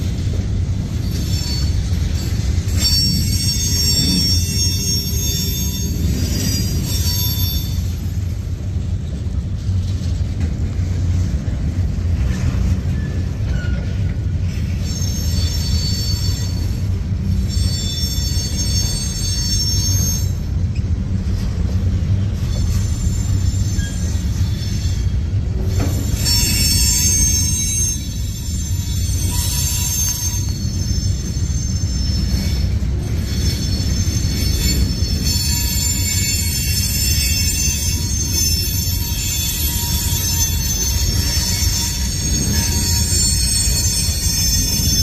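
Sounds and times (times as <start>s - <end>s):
low rumble of wheels on rail: 0.0s - 45.0s
high-pitched wheel squeal: 0.8s - 8.3s, 12.2s - 20.9s, 22.2s - 45.0s.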